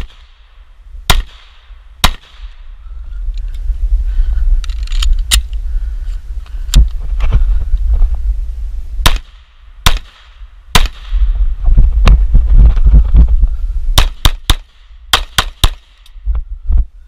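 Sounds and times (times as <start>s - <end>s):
pistol shots: 1.1s - 2.6s, 9.0s - 11.2s, 14.0s - 16.0s
low rumble on microphone: 1.7s - 14.3s, 16.0s - 17.0s.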